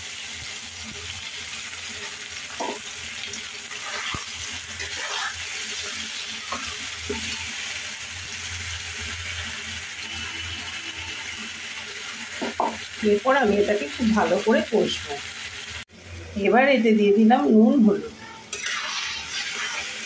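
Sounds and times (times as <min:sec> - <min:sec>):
paste sizzling in hot oil: 0:00.0 - 0:15.9, 0:18.2 - 0:20.0
metal spatula scraping pan: 0:03.7 - 0:07.8, 0:18.4 - 0:20.0.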